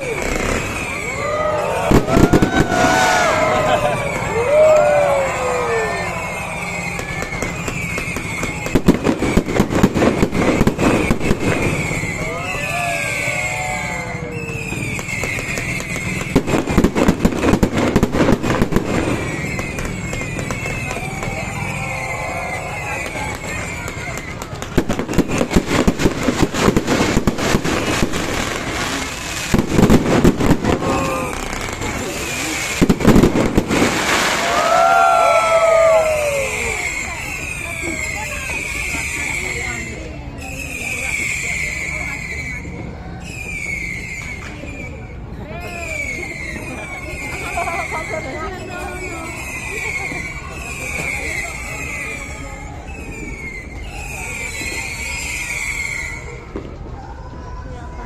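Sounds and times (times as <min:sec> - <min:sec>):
fireworks cracking and banging: 0:00.0 - 0:58.0
steady background noise: 0:00.0 - 0:58.0.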